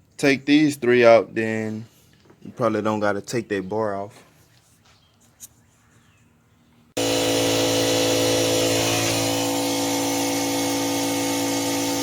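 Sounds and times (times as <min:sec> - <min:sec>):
angle grinder grinding metal: 0:07.0 - 0:12.0.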